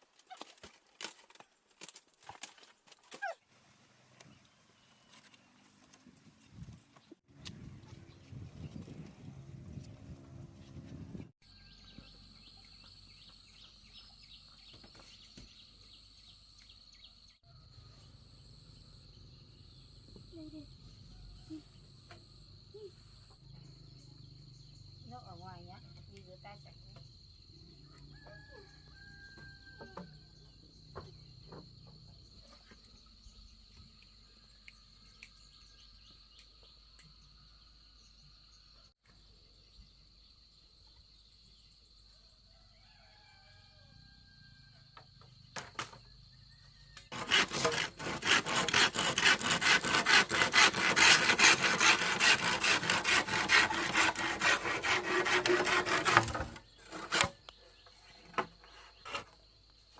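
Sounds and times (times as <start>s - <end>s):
hand saw cutting wood: 47.1s - 57.6s.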